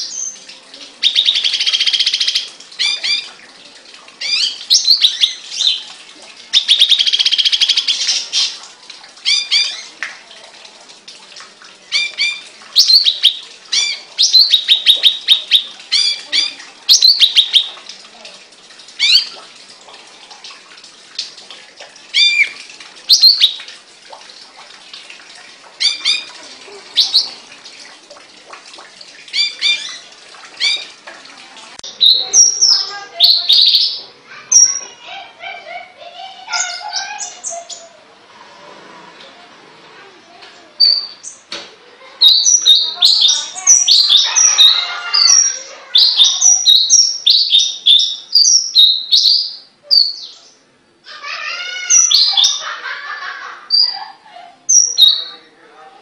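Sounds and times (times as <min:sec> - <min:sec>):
songbird chirping and whistling: 0:01.0 - 0:03.3, 0:04.2 - 0:05.8, 0:06.6 - 0:08.6, 0:12.0 - 0:17.8, 0:42.2 - 0:50.6.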